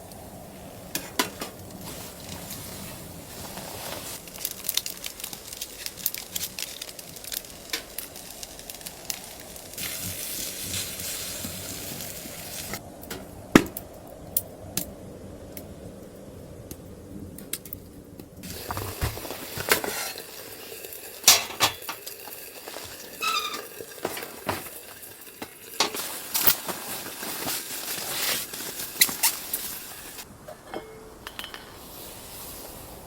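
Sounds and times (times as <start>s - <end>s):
food sizzling in a pan: 0.6s - 12.8s, 18.4s - 30.3s, 31.7s - 33.0s
utensils clicking and knocking: 21.3s - 22.1s.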